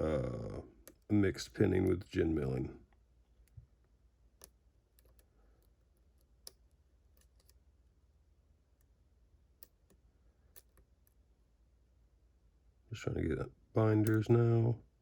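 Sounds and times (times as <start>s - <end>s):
lock pick clicking in lock: 4.4s - 7.6s.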